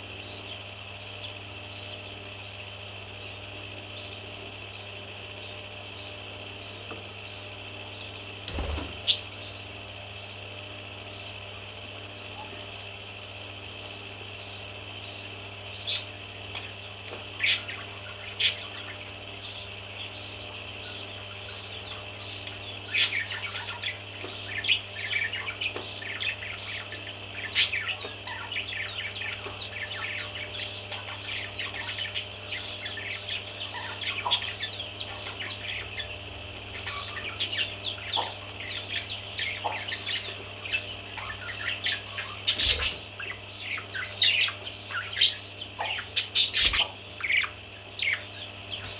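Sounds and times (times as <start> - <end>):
steady low hum: 0.0 - 48.9
baby parrots chirping: 22.9 - 48.8.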